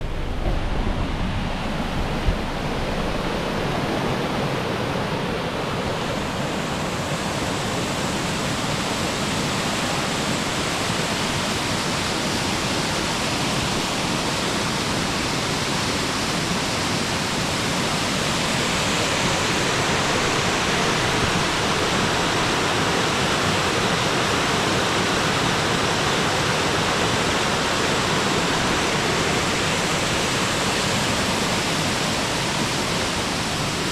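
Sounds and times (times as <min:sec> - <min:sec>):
waterfall rushing: 0:00.0 - 0:33.9
brief thump: 0:00.2 - 0:02.9.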